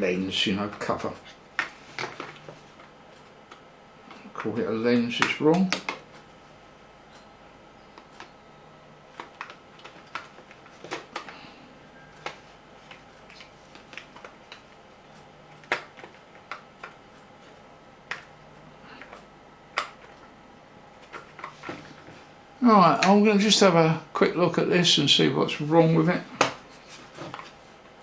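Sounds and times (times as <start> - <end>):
plastic parts clicking and tapping: 0.7 - 6.3, 8.0 - 8.4, 9.1 - 11.4, 12.2 - 20.3.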